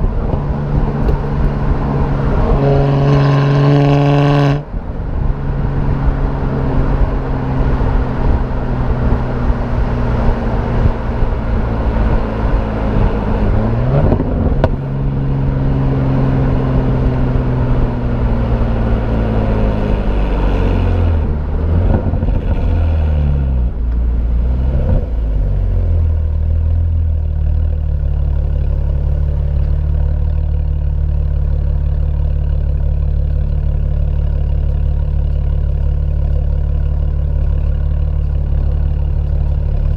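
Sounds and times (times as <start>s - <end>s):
car engine revving and idling: 0.0s - 39.9s.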